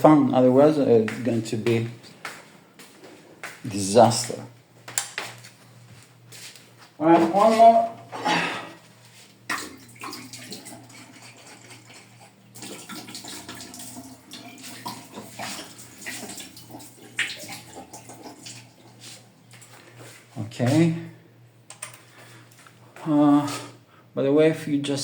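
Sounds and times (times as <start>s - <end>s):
water splashing and running: 9.5s - 19.7s.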